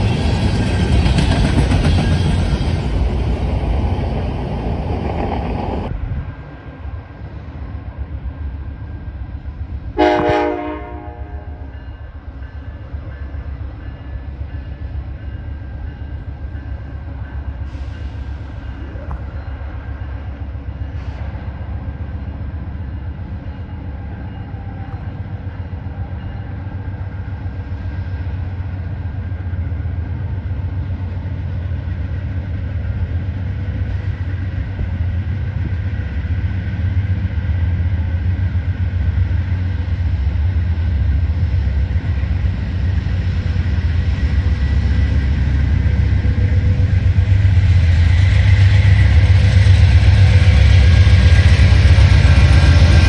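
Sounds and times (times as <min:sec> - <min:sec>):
diesel locomotive rumbling: 0:00.0 - 0:53.0
train horn blast: 0:10.0 - 0:11.7.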